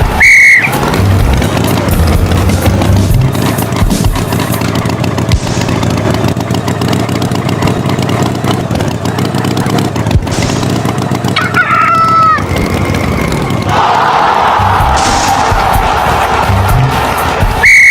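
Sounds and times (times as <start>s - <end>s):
clattering mechanical rumble: 0.0s - 17.8s
rooster crowing: 11.4s - 12.4s.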